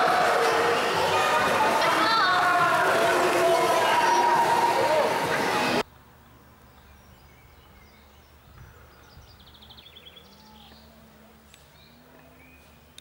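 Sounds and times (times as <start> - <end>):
small birds chirping: 6.2 - 13.0.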